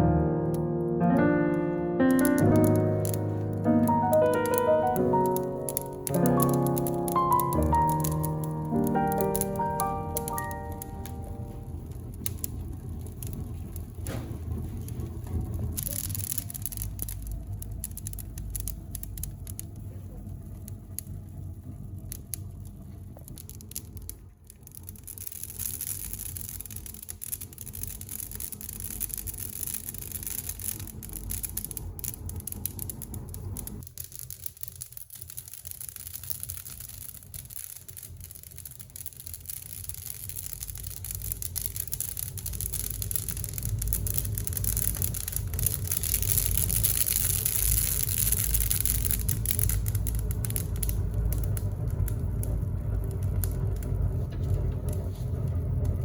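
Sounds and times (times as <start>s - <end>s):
campfire crackling: 0.0s - 56.0s
low rumble: 5.8s - 24.2s, 48.0s - 56.0s.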